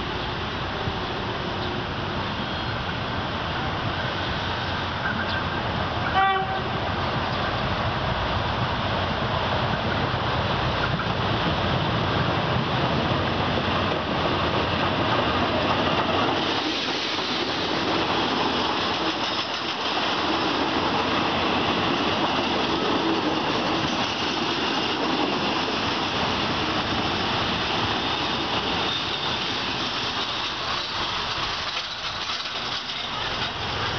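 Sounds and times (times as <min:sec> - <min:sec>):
train wheels rushing on rails: 0:00.0 - 0:33.9
locomotive engine rumble: 0:25.8 - 0:33.9.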